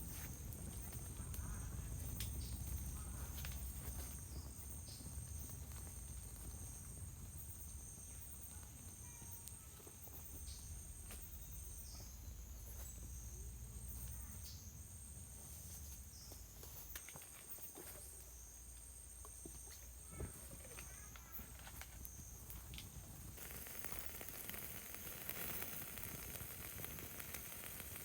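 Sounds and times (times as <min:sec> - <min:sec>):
insects trilling: 0:00.0 - 0:28.0
faint clicks: 0:20.7 - 0:28.0.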